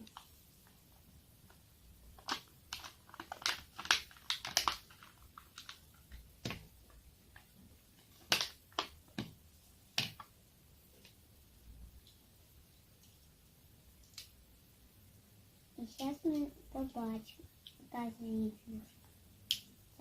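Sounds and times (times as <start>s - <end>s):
toy packaging crackling: 2.2s - 6.6s, 7.3s - 9.3s.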